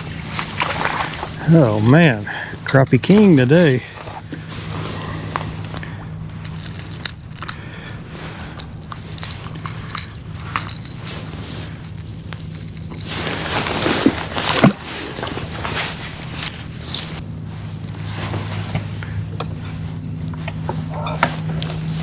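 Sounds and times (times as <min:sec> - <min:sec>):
steady low hum: 0:00.0 - 0:22.0
fishing tackle clicking and rattling: 0:06.1 - 0:07.7, 0:08.4 - 0:13.5, 0:16.1 - 0:17.2.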